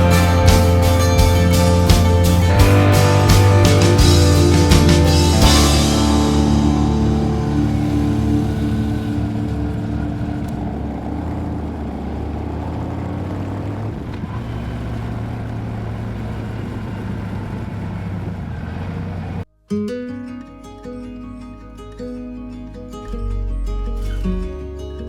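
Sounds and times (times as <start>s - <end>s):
rock music: 0.0s - 13.0s
motorcycle engine droning: 0.0s - 19.5s.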